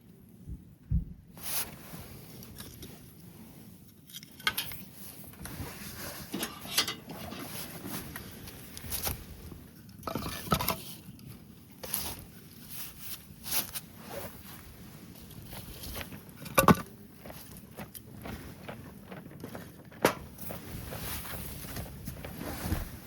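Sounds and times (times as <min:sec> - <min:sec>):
camp gear knocks and rustles: 0:15.3 - 0:23.0.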